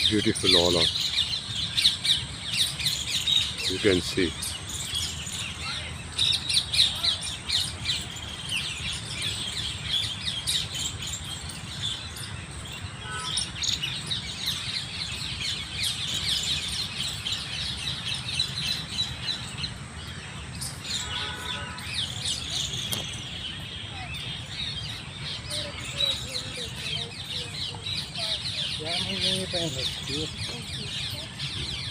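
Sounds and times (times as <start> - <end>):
small birds chirping: 0.0 - 31.9.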